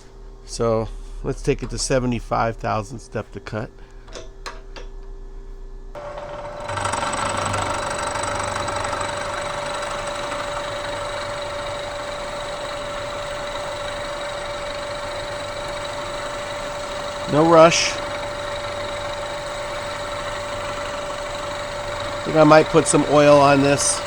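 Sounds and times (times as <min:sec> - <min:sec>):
milling machine whine: 0:05.9 - 0:24.0
milling cutting noise: 0:06.0 - 0:24.0.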